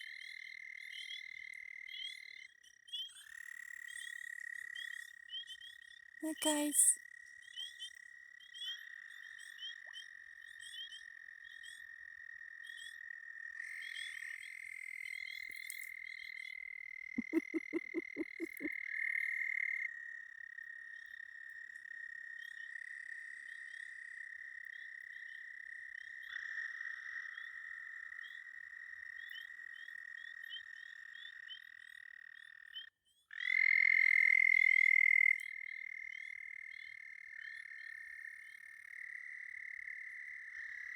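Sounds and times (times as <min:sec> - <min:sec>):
close frog trilling loudly: 0:17.2 - 0:18.7
frog chirps: 0:17.2 - 0:18.7
low frog croaks: 0:17.2 - 0:19.2
frogs trilling: 0:17.2 - 0:21.3.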